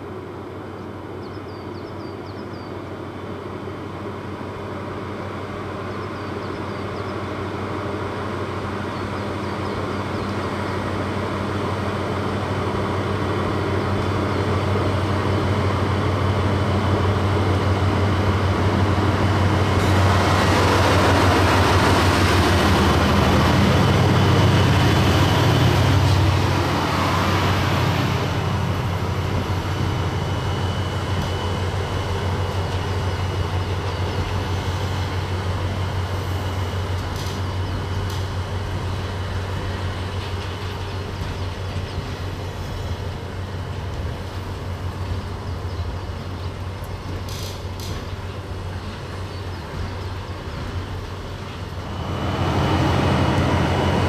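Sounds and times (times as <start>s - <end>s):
train wheel rush: 3.2s - 54.0s
diesel engine drone: 12.4s - 40.2s, 50.6s - 54.0s.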